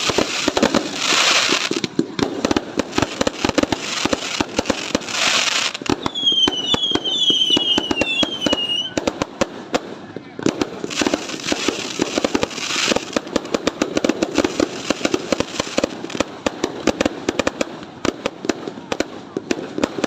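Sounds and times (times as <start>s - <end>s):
fireworks crackling and banging: 0.0s - 20.0s
fireworks hissing bursts: 0.0s - 20.0s
falling firework whistles: 3.1s - 9.1s.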